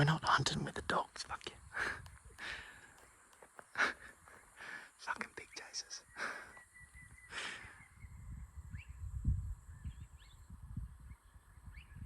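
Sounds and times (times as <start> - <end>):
wind buffeting microphone: 0.0 - 4.9, 5.6 - 12.0
faint bird calls: 1.6 - 9.1.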